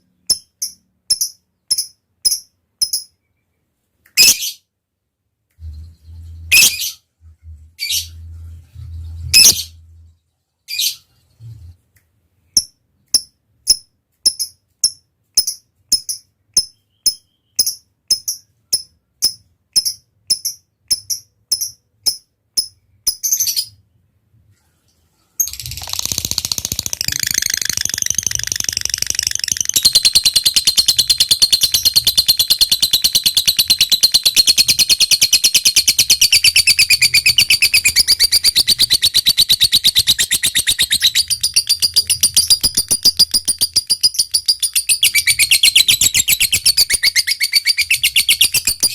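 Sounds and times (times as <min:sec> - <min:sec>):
lovebird high chirps: 0:04.2 - 0:04.6, 0:05.6 - 0:07.0, 0:08.8 - 0:10.0, 0:12.6 - 0:23.8, 0:25.4 - 0:48.9
lovebird rapid chattering trill: 0:25.4 - 0:48.9.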